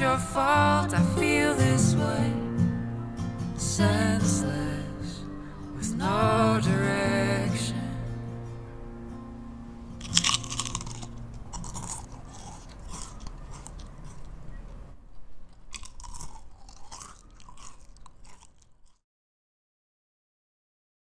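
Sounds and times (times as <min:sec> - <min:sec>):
wafer cracking when bitten: 0:10.0 - 0:14.4, 0:15.5 - 0:19.0
crunchy chewing: 0:10.0 - 0:19.0.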